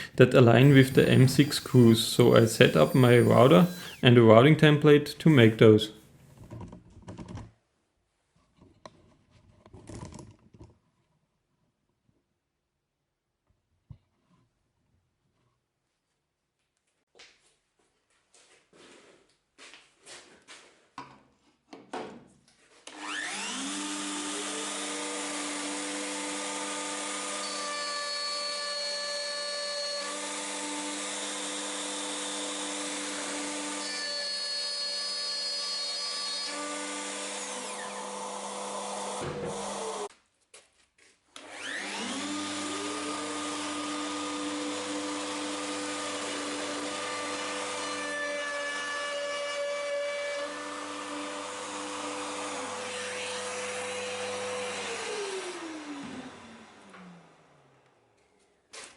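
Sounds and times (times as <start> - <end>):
electric router running: 0.0 - 5.8, 22.9 - 40.1, 41.4 - 48.4, 50.4 - 58.1.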